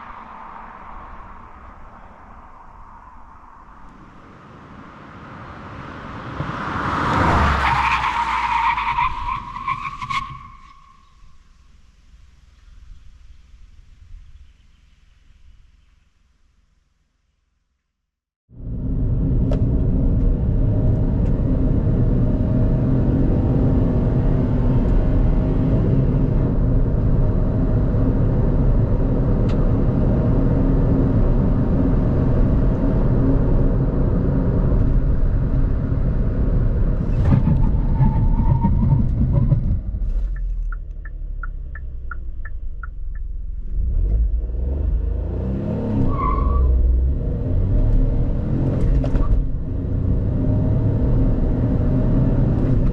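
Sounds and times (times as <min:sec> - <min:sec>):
car engine under load: 0:18.6 - 0:52.9.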